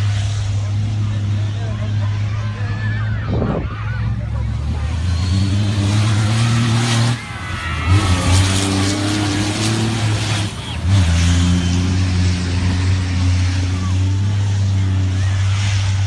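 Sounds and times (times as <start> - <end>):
rally car engine running hard: 0.0 - 16.0.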